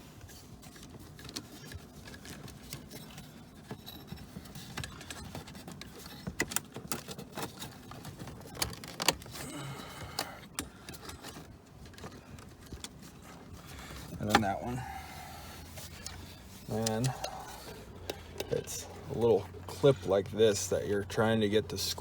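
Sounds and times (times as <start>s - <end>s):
small car parts clicking and rattling: 0.0s - 22.0s.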